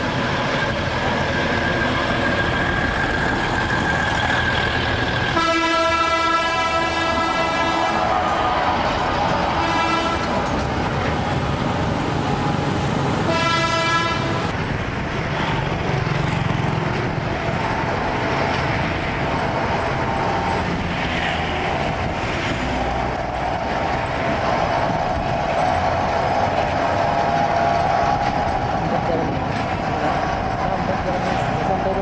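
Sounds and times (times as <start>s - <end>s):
railbus running past: 0.0s - 32.0s
road traffic: 0.0s - 32.0s
train horn: 5.3s - 8.6s, 9.6s - 10.4s, 13.2s - 14.5s.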